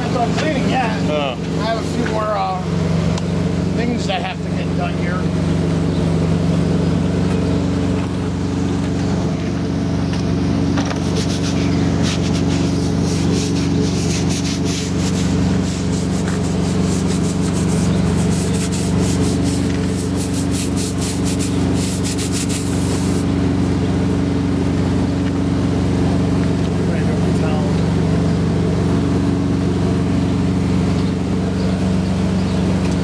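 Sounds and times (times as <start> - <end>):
diesel engine idling: 0.0 - 33.0
hands rubbing: 10.9 - 23.8.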